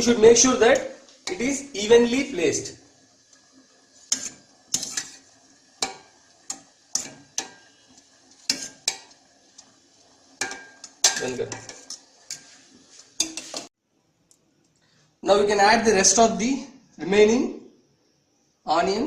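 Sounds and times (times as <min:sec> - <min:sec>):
spoon clinking against metal pot: 0:00.8 - 0:01.4, 0:05.8 - 0:07.7, 0:10.4 - 0:12.5, 0:13.2 - 0:13.7.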